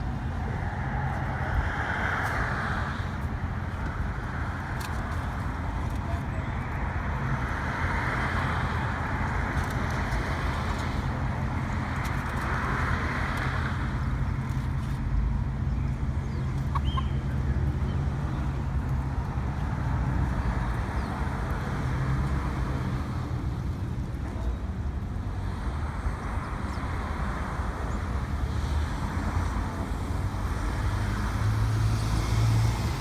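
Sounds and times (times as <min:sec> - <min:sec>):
cars passing: 0:00.0 - 0:33.0
traffic low rumble: 0:00.0 - 0:33.0.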